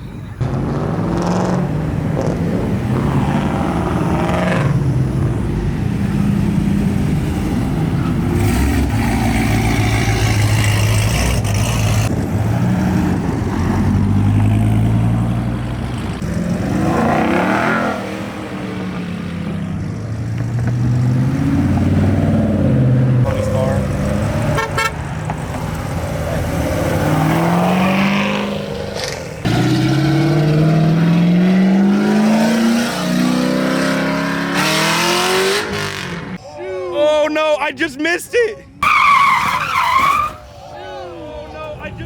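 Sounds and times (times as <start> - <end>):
car engines revving: 0.0 - 36.4.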